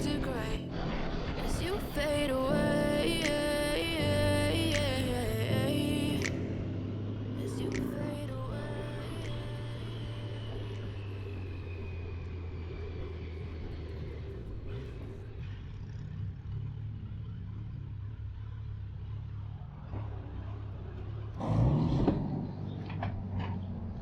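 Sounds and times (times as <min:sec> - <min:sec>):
motorcycle engine running: 0:12.2 - 0:21.4.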